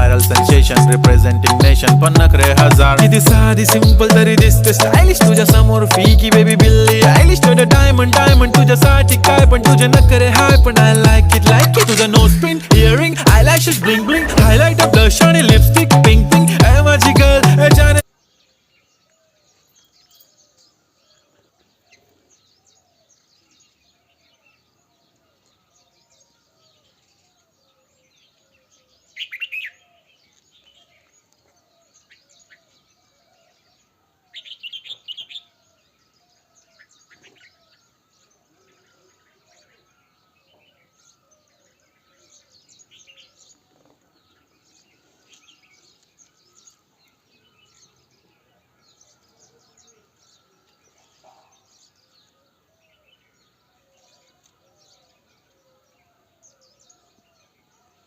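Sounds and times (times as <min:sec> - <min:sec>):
birds chirping: 0:00.0 - 0:58.0
short repeated lower bird calls: 0:28.7 - 0:52.0.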